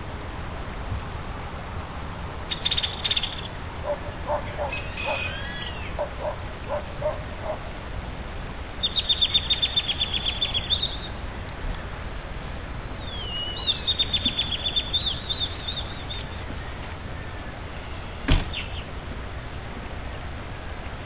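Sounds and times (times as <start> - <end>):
birds calling: 2.5 - 7.8, 8.8 - 11.2, 12.8 - 19.0.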